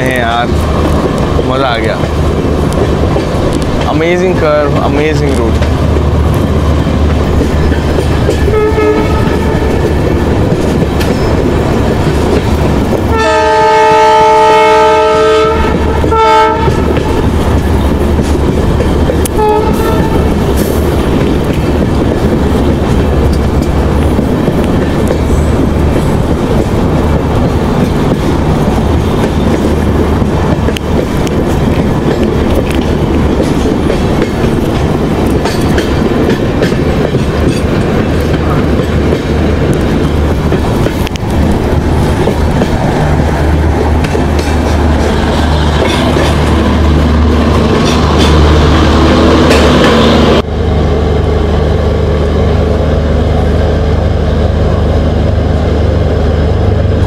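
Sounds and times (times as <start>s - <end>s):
train rumble and clickety-clack: 0.0s - 57.0s
locomotive horn: 8.4s - 9.9s, 13.1s - 17.3s, 19.4s - 20.3s.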